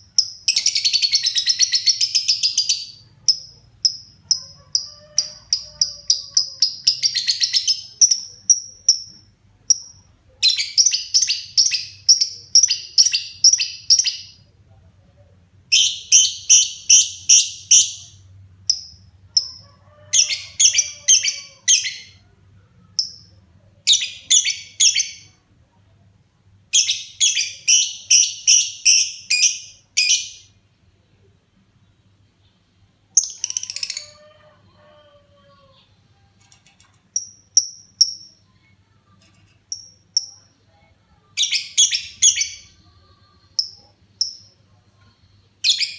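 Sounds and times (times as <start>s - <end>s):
lovebird chirping: 0.0s - 14.4s, 22.8s - 25.4s, 26.7s - 30.6s, 33.2s - 34.2s, 37.2s - 38.7s, 39.7s - 43.0s, 43.6s - 44.6s.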